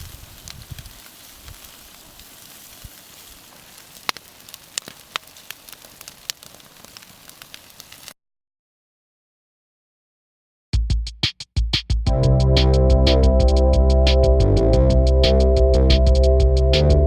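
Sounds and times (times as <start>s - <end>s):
fire hissing: 0.0s - 8.2s
wood fire crackling and popping: 0.0s - 8.2s.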